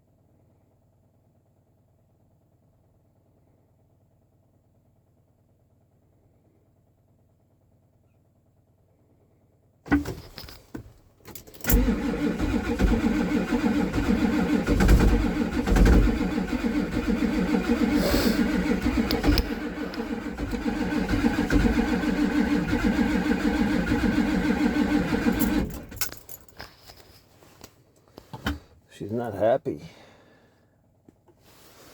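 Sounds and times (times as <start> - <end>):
diesel engine starter cranking: 9.9 - 27.0.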